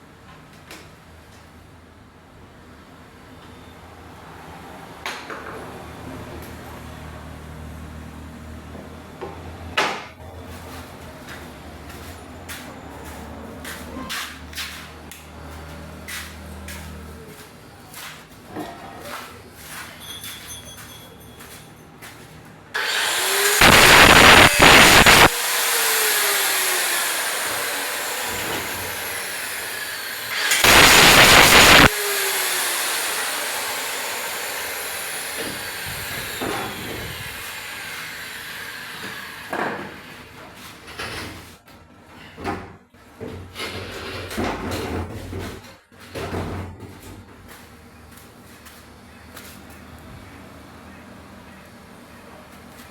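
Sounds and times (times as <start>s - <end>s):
hiss: 22.8s - 28.0s, 29.0s - 34.3s
motor winding down: 22.8s - 38.8s
power tool grinding metal: 22.8s - 39.5s.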